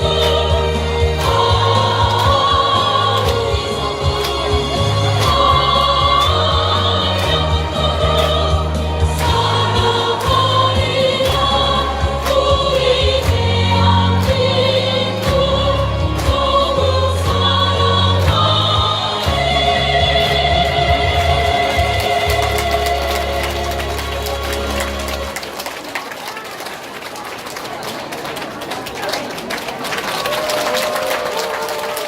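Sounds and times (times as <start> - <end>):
choir singing: 0.0 - 25.3.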